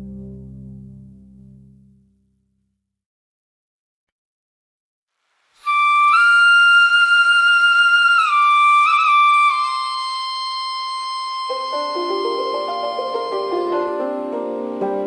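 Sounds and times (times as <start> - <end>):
solo flute melody: 5.6 - 15.0.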